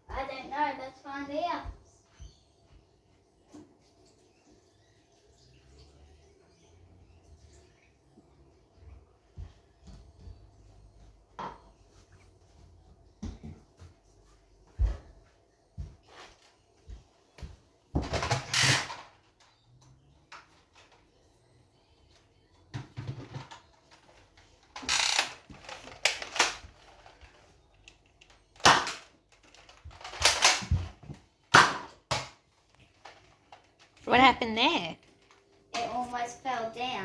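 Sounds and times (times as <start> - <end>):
toy blaster clacks: 24.8 - 26.6, 28.6 - 30.6.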